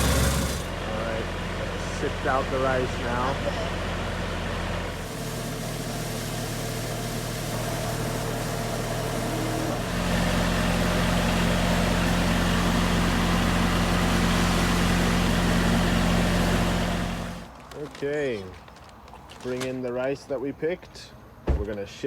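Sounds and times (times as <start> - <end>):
rice-processing machine humming: 0.0 - 17.5.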